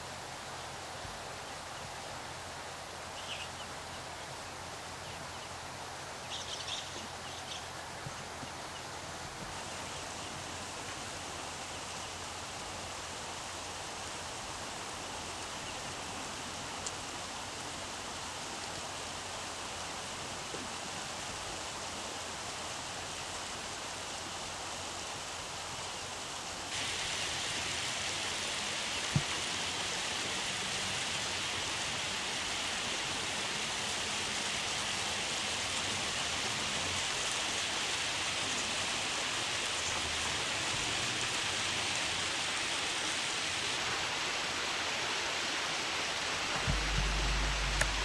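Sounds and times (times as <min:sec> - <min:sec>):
river water rushing: 0:00.0 - 0:48.0
low thumps: 0:46.6 - 0:48.0.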